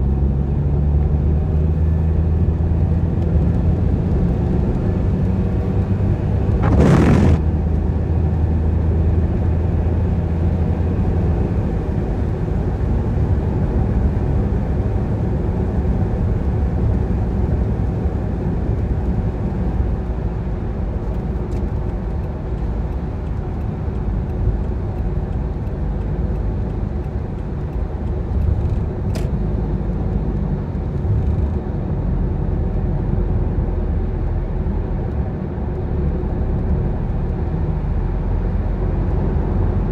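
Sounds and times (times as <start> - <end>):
car engine and tyres rumbling: 0.0 - 39.9
loud whoosh: 6.5 - 7.5.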